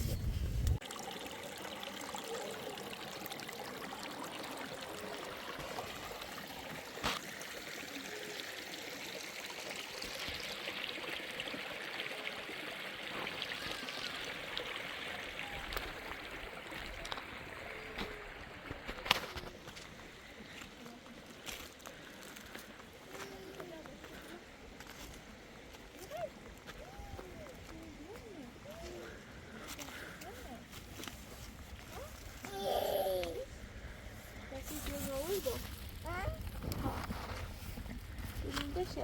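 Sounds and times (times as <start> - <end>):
water trickling: 0.8 - 22.3.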